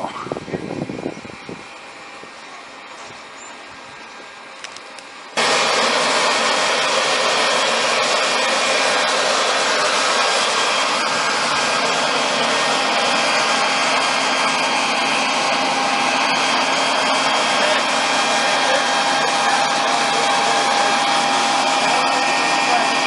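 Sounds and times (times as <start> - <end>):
leaf blower running: 0.0 - 23.0.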